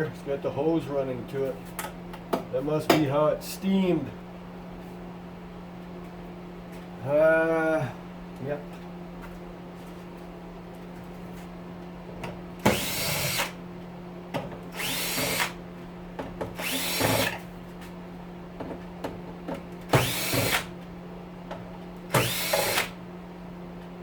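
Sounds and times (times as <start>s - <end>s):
power drill removing screws: 12.7s - 13.6s, 14.7s - 15.6s, 16.6s - 17.4s, 20.0s - 20.7s, 22.1s - 23.0s.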